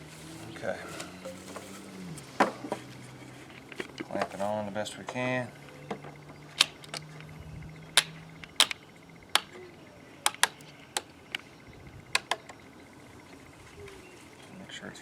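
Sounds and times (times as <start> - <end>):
bar clamp clicking: 6.6 - 7.1, 8.0 - 8.8, 10.3 - 11.4.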